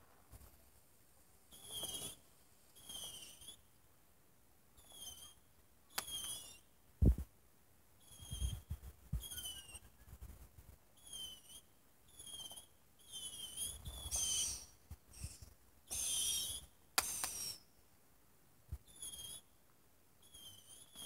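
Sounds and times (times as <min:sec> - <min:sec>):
whistling fireworks: 0:13.1 - 0:17.7
sharp firework crack: 0:17.0 - 0:17.6
sparks hissing: 0:17.0 - 0:17.6.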